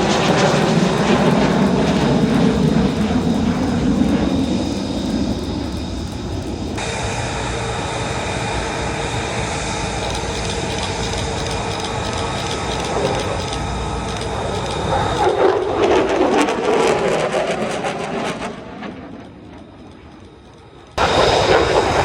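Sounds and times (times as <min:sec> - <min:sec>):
aircraft engine rumble and whine: 0:00.0 - 0:22.0.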